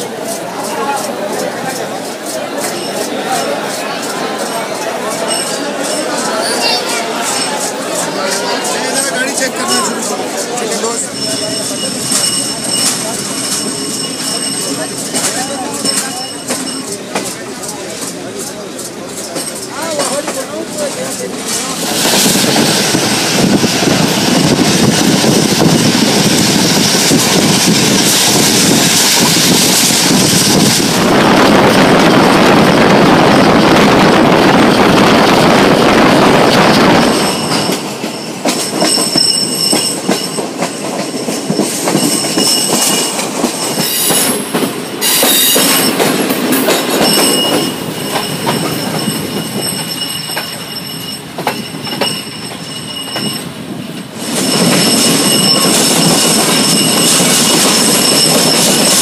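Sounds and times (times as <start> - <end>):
deep train rumble: 0.0 - 59.0
rail joint clicks: 0.0 - 59.0
train wheel noise: 0.0 - 59.0
high wheel squeal: 2.6 - 17.1, 31.7 - 53.6, 54.2 - 59.0.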